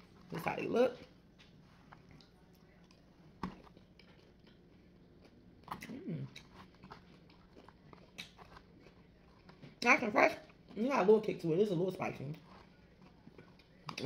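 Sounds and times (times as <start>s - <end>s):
person chewing: 1.2s - 9.8s, 12.3s - 14.0s.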